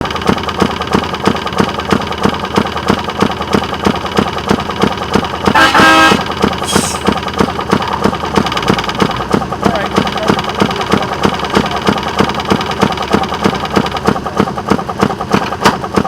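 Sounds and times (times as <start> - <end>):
rail motorcar engine putting: 0.0 - 16.0
horn sounding: 5.4 - 7.1.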